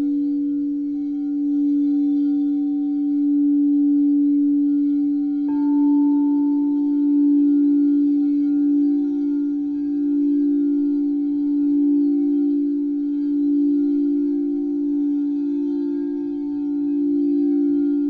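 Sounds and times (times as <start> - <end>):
singing bowls ringing: 0.0 - 18.0
singing bowl strike: 5.5 - 12.7.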